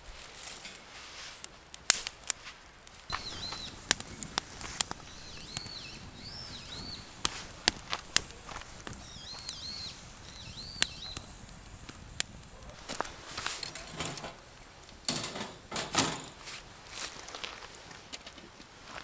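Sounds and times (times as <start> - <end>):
small bird chirping: 3.1 - 12.8
rustling handling noise: 11.3 - 19.0.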